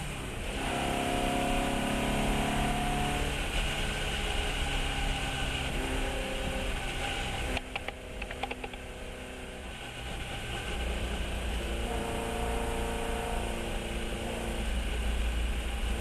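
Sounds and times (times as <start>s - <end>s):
race car engine running: 0.0s - 12.5s.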